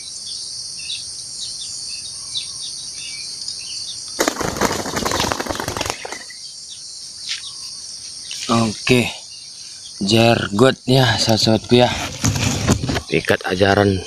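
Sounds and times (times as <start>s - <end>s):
crickets and insects droning: 0.0s - 14.0s
bird wings flapping: 4.2s - 6.4s.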